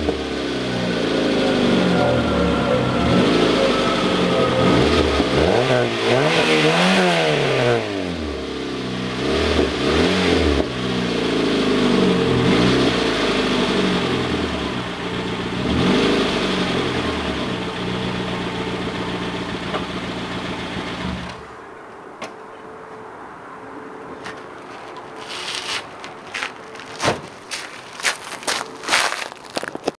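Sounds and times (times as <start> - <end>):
car engine revving: 0.0 - 21.3.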